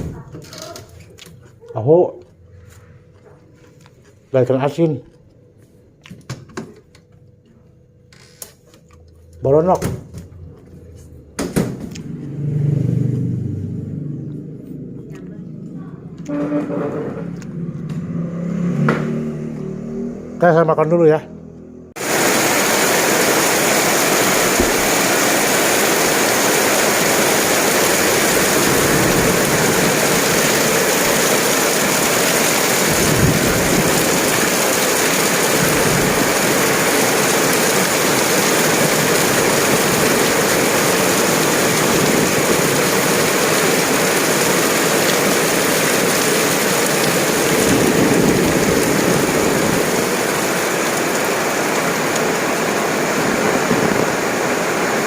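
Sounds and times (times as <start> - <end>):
heavy rain hissing: 21.9 - 55.0.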